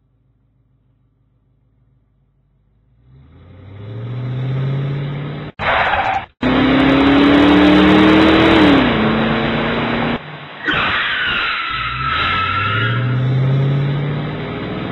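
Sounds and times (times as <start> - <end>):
car engine revving: 2.7 - 10.3.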